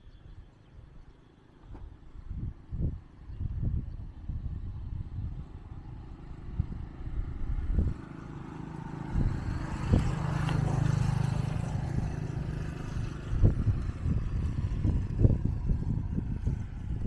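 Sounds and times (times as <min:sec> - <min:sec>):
small engine droning: 0:04.3 - 0:17.0.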